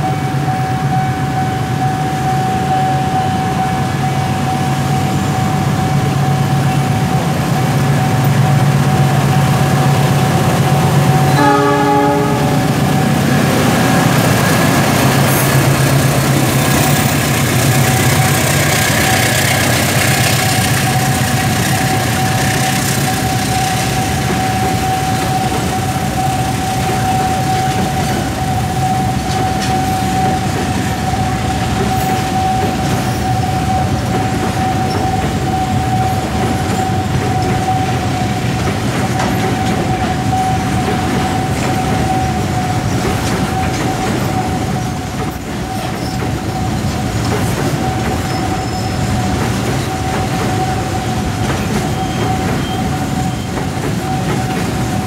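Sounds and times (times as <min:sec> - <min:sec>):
crossing warning alarm tone: 0:00.0 - 0:55.0
locomotive horn: 0:11.1 - 0:13.8.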